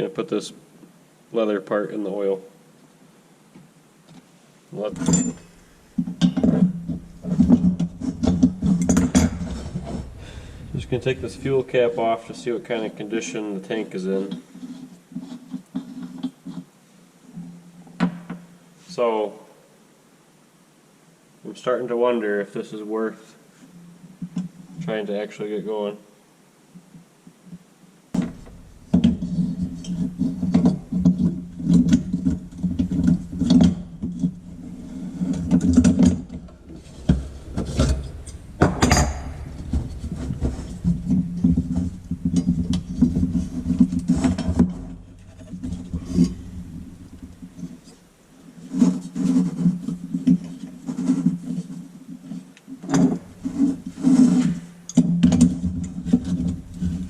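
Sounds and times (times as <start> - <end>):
metal parts clinking and scraping: 5.0 - 5.6.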